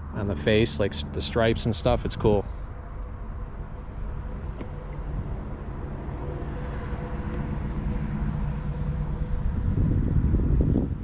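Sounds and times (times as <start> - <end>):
insects droning: 0.0 - 11.0
low rumbling noise: 0.0 - 11.0.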